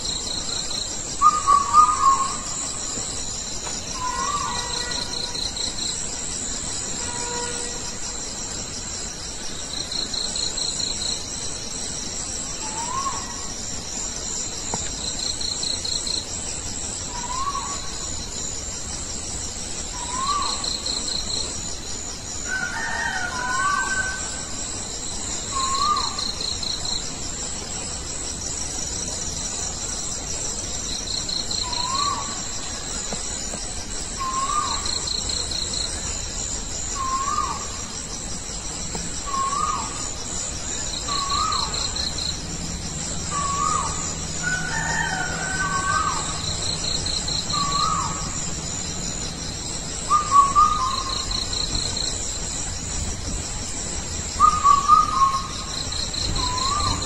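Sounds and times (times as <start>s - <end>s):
crickets trilling: 0.0s - 57.0s
night bird calling: 1.2s - 3.1s, 3.8s - 5.9s, 12.5s - 13.6s, 17.0s - 18.4s, 19.9s - 21.8s, 22.4s - 24.5s, 25.3s - 27.0s, 30.9s - 36.2s, 36.8s - 38.2s, 39.0s - 42.4s, 43.2s - 53.1s, 54.4s - 57.0s.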